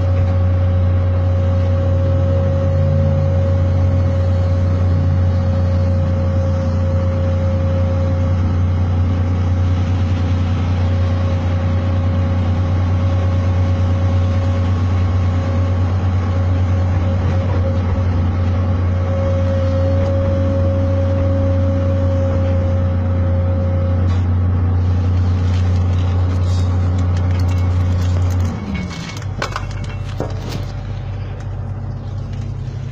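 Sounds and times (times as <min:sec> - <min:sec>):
diesel engine droning: 0:00.0 - 0:32.9.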